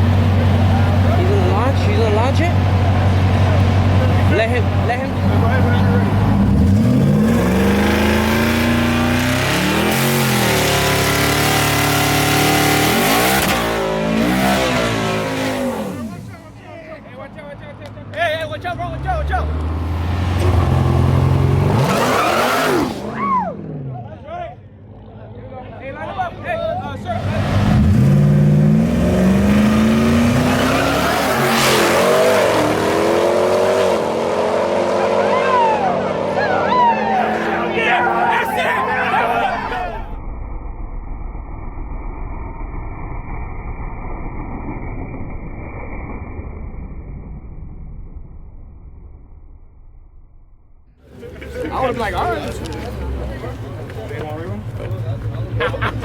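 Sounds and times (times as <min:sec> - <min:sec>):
car engine accelerating hard: 0:00.0 - 0:16.4, 0:18.6 - 0:24.1, 0:27.1 - 0:40.2
voices shouting: 0:34.9 - 0:40.2.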